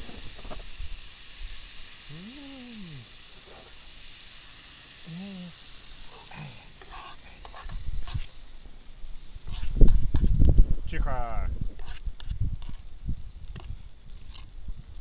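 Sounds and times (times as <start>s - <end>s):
food sizzling in a frying pan: 0.0s - 14.9s
short low vocal sounds: 2.1s - 3.1s, 5.0s - 6.7s.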